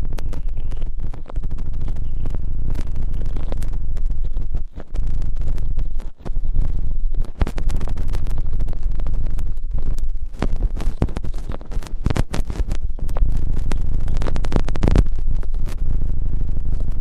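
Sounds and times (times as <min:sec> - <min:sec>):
crackling and scratching on microphone: 0:00.0 - 0:17.0
low rumble: 0:00.0 - 0:17.0.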